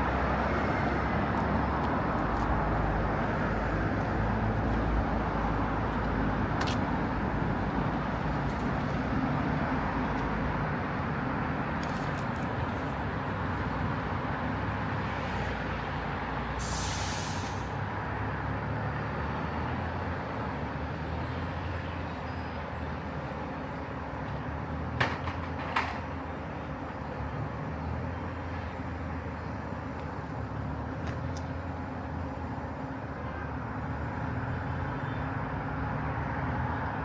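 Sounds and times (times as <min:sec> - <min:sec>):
passing cars and buses: 0:00.0 - 0:37.0
short hiss: 0:16.6 - 0:17.7.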